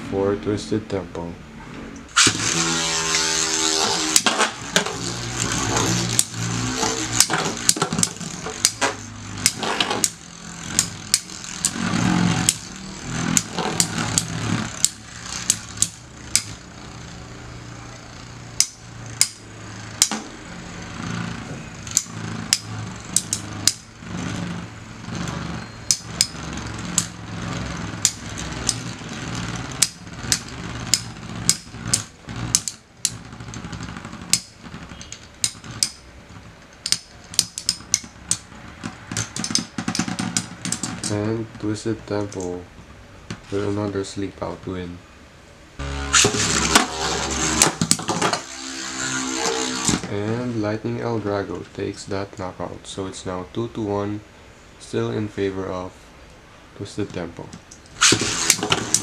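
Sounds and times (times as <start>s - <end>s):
spinning whirr: 2.0s - 41.2s, 45.8s - 50.1s, 57.9s - 59.0s
metal spinning tops clacking: 2.1s - 41.2s, 46.2s - 50.1s, 57.7s - 59.0s.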